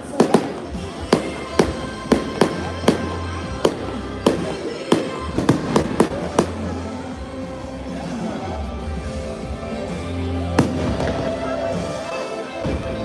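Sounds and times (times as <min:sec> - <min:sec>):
fireworks banging: 0:00.0 - 0:06.8, 0:10.6 - 0:11.5
music: 0:00.0 - 0:13.0.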